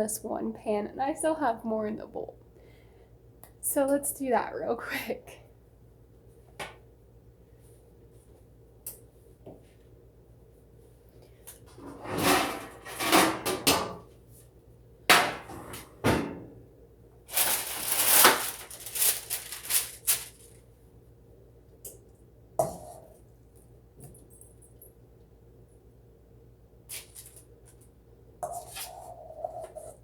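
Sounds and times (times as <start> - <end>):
metal baking pans clattering: 11.8 - 14.0.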